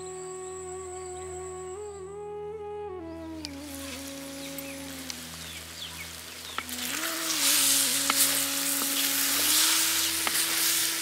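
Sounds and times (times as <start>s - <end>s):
food sizzling in a pan: 5.4s - 11.0s.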